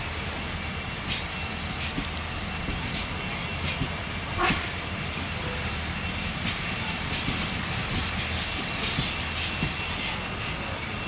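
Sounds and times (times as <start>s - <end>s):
train wheels rumbling on rails: 0.0s - 11.0s
wheels clacking over rail joints: 1.0s - 4.7s, 6.3s - 10.1s.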